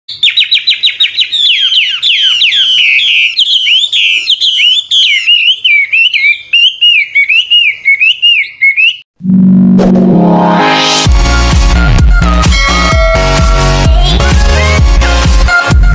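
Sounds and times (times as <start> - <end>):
bird singing whistled notes: 0.1 - 9.1
electronic music with rising sweep: 9.2 - 15.8.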